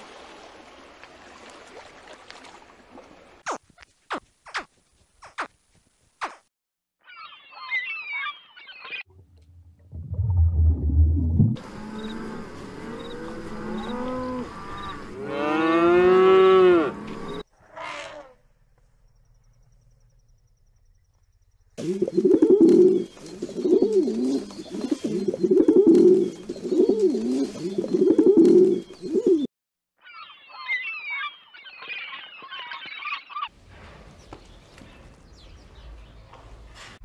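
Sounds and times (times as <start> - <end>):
cattle mooing: 11.6 - 17.4
pigeons cooing: 21.8 - 29.5.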